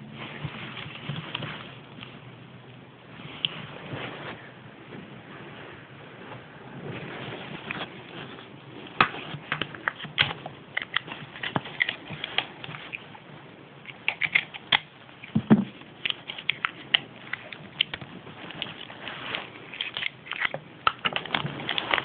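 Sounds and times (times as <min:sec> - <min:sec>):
plastic packaging crinkling: 0:13.9 - 0:22.0.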